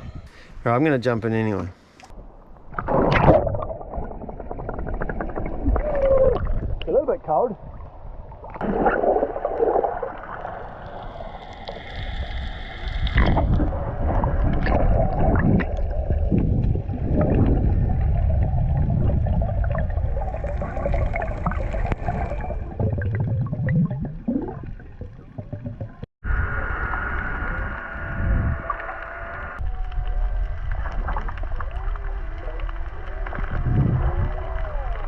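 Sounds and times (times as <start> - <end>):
low underwater rumble: 2.1 - 7.0, 7.6 - 35.0
muffled underwater gurgling: 8.5 - 35.0.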